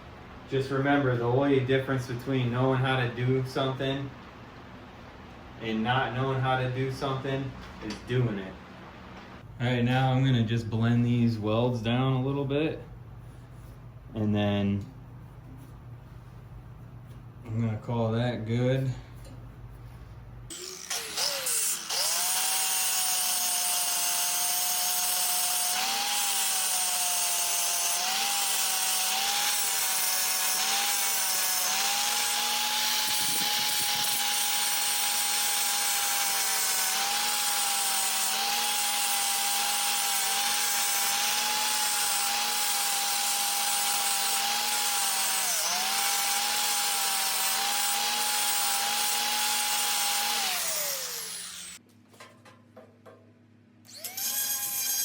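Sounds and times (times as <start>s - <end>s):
electric grinder whining: 20.5s - 51.8s, 53.9s - 55.0s.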